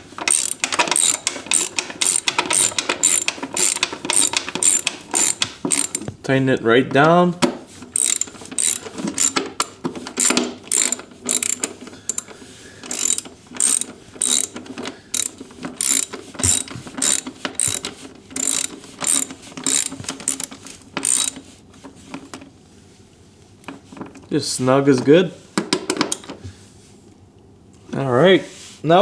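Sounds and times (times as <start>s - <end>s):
hand ratchet clicking: 0.1s - 6.1s, 8.0s - 9.5s, 10.2s - 21.4s.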